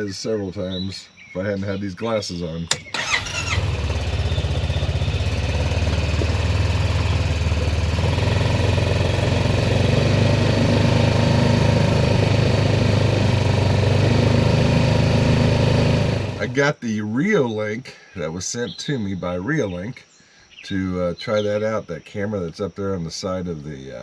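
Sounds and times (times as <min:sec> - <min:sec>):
vehicle engine running: 0:03.0 - 0:16.7.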